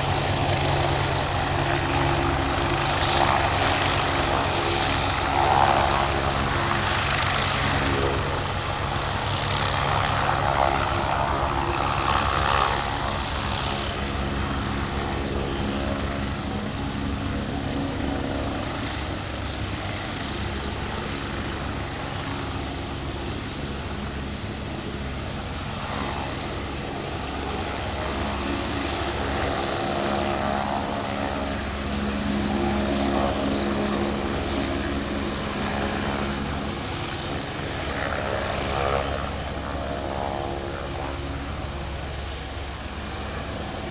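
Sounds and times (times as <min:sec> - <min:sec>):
helicopter engine whine: 0:00.0 - 0:43.9.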